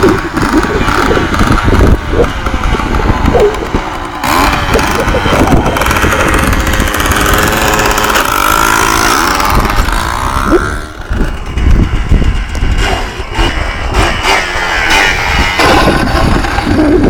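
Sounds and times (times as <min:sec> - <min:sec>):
quad engine revving: 0:00.0 - 0:17.0.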